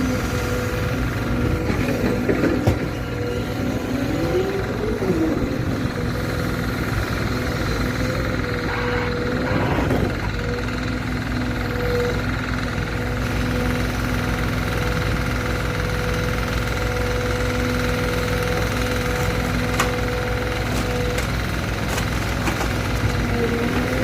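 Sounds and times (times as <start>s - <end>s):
engine running with low pulsing: 0.0s - 24.0s
steady whine: 3.0s - 12.3s.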